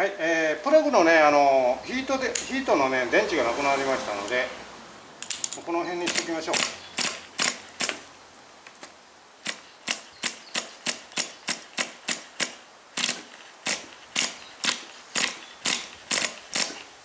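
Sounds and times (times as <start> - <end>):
sharp mechanical clicks: 5.2 - 8.8, 9.4 - 16.9.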